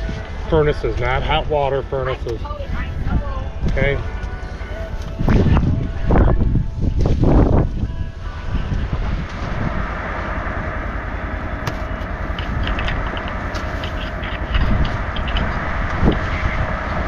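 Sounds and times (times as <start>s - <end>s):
exhaust vents blowing: 0.0s - 17.0s.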